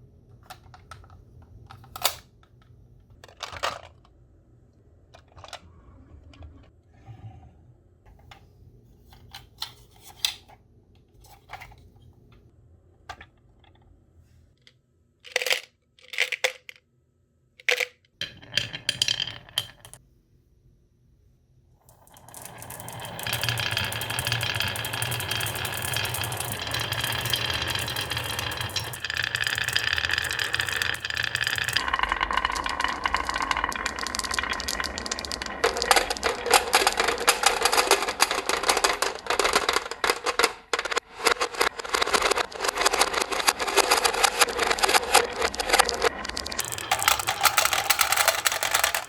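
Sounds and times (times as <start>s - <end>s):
marbles clattering: 17.7s - 20.0s, 21.9s - 49.0s
marbles rolling on wooden track: 17.8s - 20.0s, 21.9s - 49.0s.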